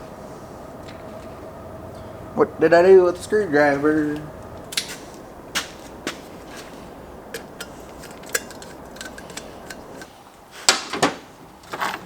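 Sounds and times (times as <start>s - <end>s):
metal tools clinking: 6.4s - 10.2s, 11.6s - 12.0s.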